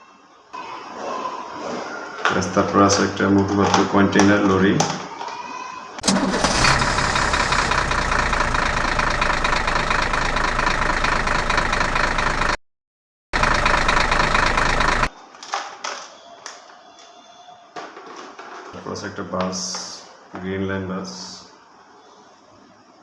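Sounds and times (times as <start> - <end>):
electronic engine idling effect: 6.0 - 12.6, 13.4 - 15.1.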